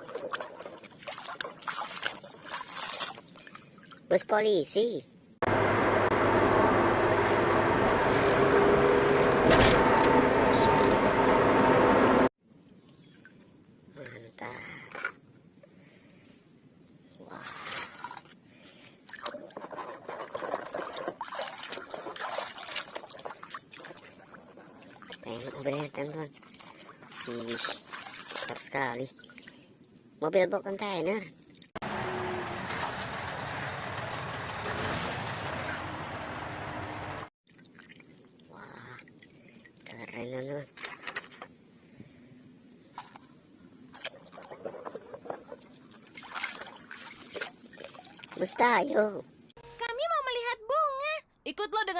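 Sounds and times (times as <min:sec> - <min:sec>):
wet rubbing and squishing: 0:00.0 - 0:03.8, 0:19.1 - 0:29.5, 0:43.0 - 0:48.7
water splashing and trickling: 0:00.0 - 0:04.3, 0:17.2 - 0:30.2, 0:37.4 - 0:41.3, 0:42.9 - 0:49.2.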